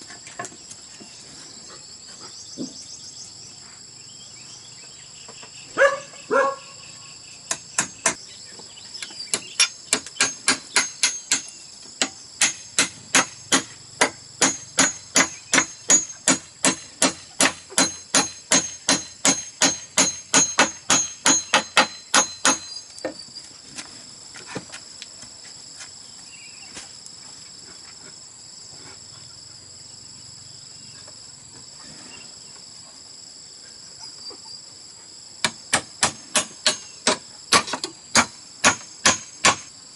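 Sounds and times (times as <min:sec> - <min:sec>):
insects droning: 0:00.0 - 0:39.9
dog barking: 0:05.8 - 0:06.8
hammer striking bamboo: 0:07.5 - 0:08.2, 0:09.3 - 0:22.8, 0:35.4 - 0:39.7.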